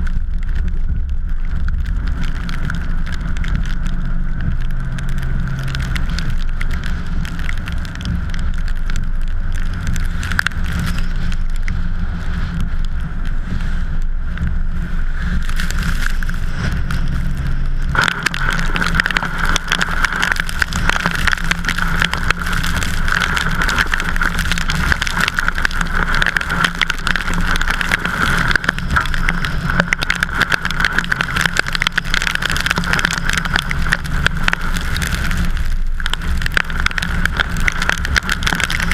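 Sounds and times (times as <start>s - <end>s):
crackling hiss: 0.0s - 38.9s
vehicle road rumble: 0.0s - 38.9s.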